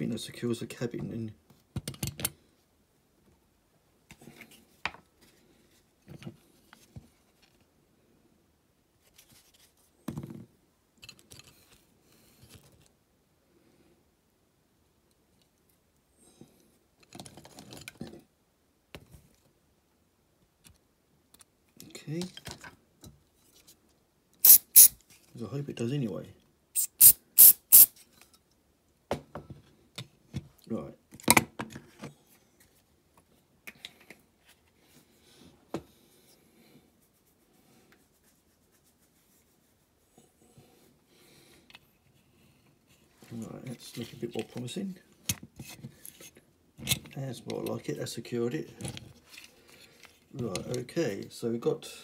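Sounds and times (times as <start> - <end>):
hands handling toy parts: 11.0 - 12.9, 23.4 - 25.3, 48.7 - 51.3.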